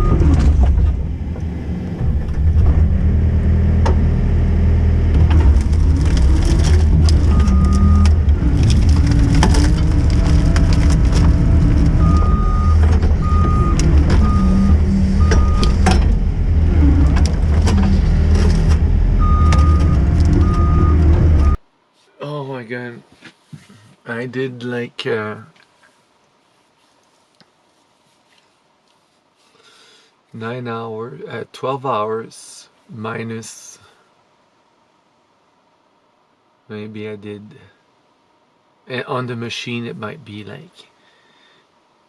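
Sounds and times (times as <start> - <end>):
skid steer engine under load: 0.0 - 21.6.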